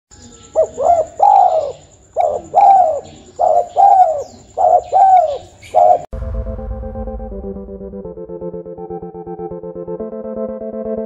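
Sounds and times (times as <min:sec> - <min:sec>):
bird calling: 0:00.1 - 0:06.1.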